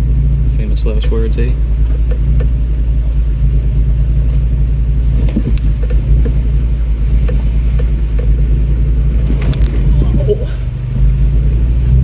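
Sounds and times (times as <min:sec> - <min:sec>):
engine low rumble: 0:00.0 - 0:12.0.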